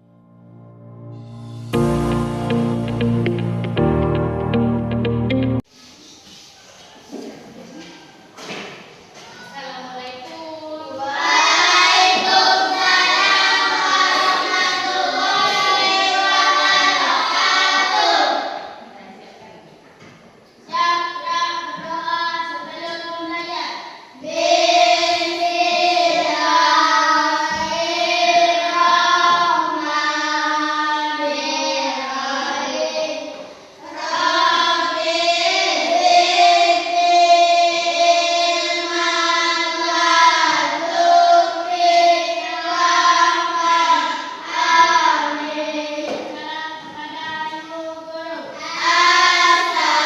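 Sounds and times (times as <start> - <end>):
children singing in unison: 10.8 - 18.8, 20.6 - 50.0.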